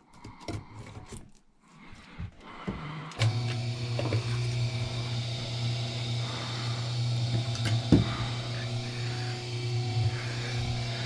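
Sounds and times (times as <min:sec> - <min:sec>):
machine motor humming: 0:03.2 - 0:11.0.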